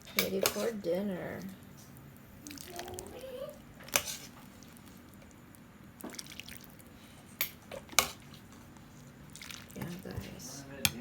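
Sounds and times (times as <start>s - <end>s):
utensils clinking against bowl: 0.0s - 0.8s.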